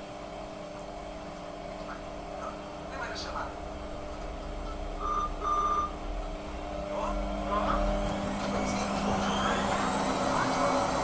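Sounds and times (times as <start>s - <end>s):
phone line hum: 3.6s - 11.0s
short electronic beeps: 5.0s - 6.0s.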